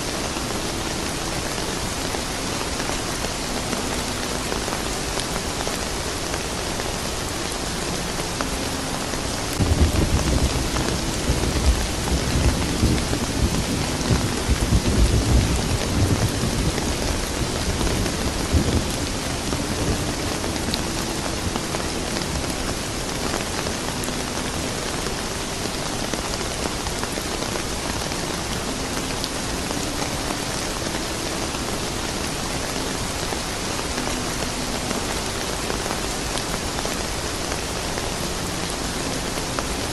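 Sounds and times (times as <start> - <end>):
steady rain falling: 0.0 - 39.9
thunder rumbling: 9.5 - 22.8.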